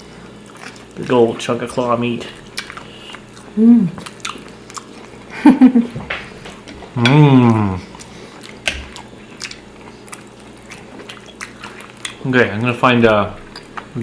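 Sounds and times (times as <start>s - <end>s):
close chewing and biting: 0.3s - 1.4s, 2.4s - 5.3s, 6.5s - 12.3s.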